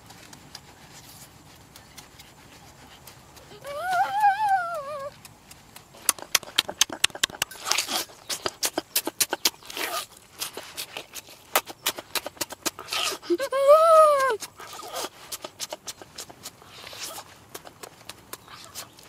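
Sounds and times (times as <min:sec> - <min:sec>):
chewing and lip-smacking: 0:00.0 - 0:19.0
person humming: 0:03.5 - 0:05.2, 0:13.3 - 0:14.4.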